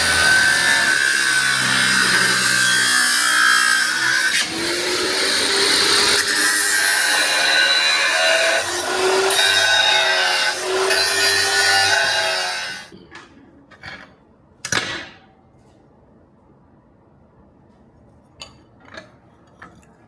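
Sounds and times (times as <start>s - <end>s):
electric grinder on steel: 0.0s - 12.9s.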